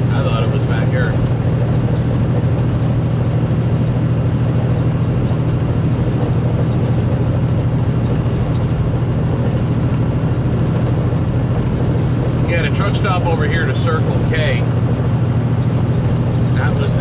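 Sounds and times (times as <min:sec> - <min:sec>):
road noise: 0:00.0 - 0:17.0
truck diesel engine drone: 0:00.0 - 0:17.0.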